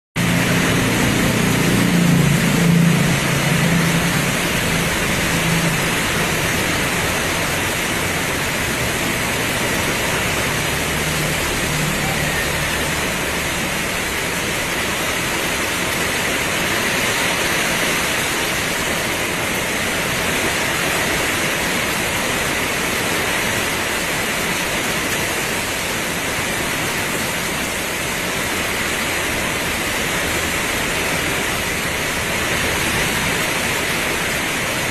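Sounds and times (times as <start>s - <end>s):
low vehicle engine rumble: 0.2s - 18.2s
heavy rain pouring: 0.2s - 34.9s.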